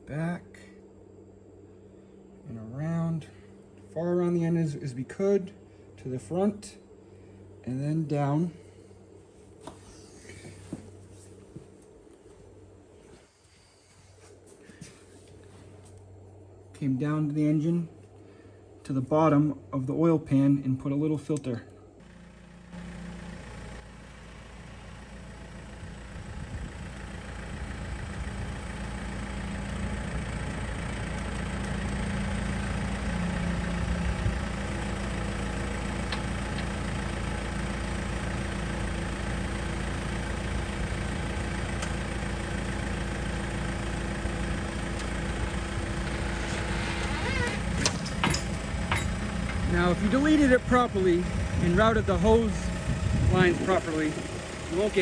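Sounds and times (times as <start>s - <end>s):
engine idling: 21.9s - 55.0s.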